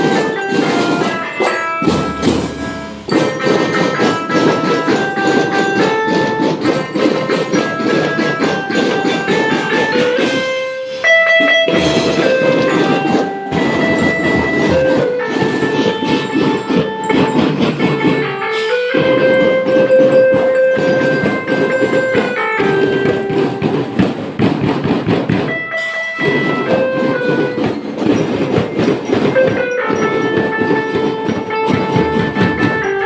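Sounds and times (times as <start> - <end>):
dense drumming: 11.7 - 25.6.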